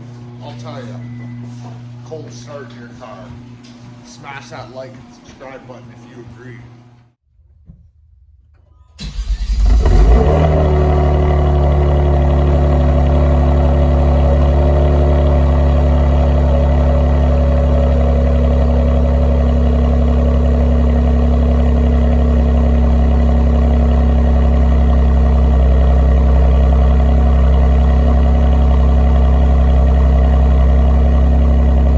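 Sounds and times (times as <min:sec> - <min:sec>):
car engine idling: 0:09.0 - 0:31.9.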